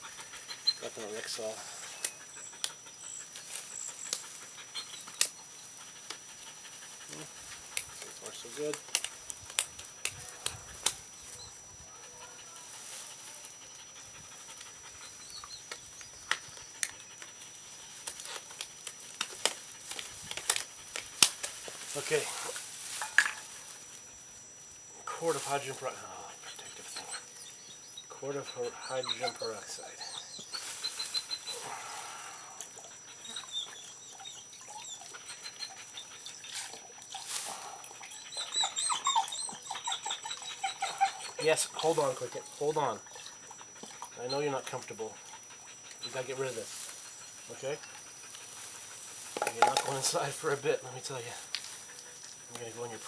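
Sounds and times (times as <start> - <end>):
latex gloves clicking and snapping: 8.7 - 11.0, 18.0 - 21.6
dog whining and whimpering: 26.5 - 31.7, 33.1 - 36.5, 38.0 - 41.6.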